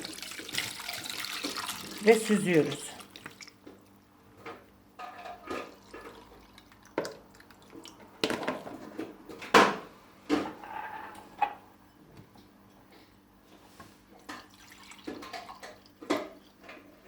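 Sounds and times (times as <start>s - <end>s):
liquid splashing through a strainer: 0.0s - 3.6s, 14.4s - 16.2s.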